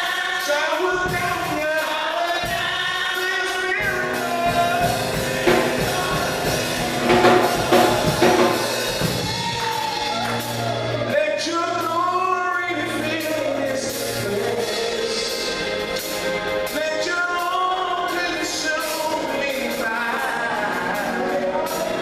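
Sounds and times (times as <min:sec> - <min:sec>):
gospel choir singing: 0:00.0 - 0:22.0
bass notes: 0:03.8 - 0:12.1
drum hits: 0:03.9 - 0:09.9.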